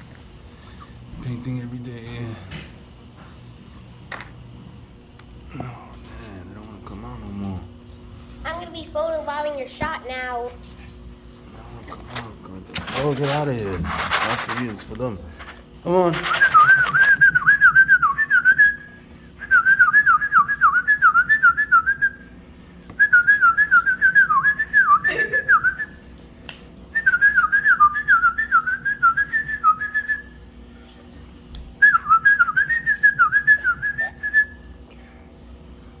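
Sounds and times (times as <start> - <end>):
person whistling trills: 16.3 - 22.2, 23.0 - 26.0, 27.0 - 30.4, 31.8 - 34.6.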